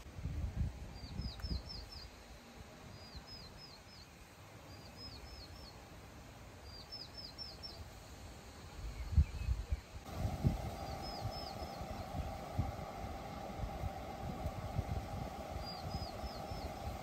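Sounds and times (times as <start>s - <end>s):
wind buffeting microphone: 8.9s - 17.0s
songbird singing high notes: 10.6s - 12.9s, 15.4s - 17.0s.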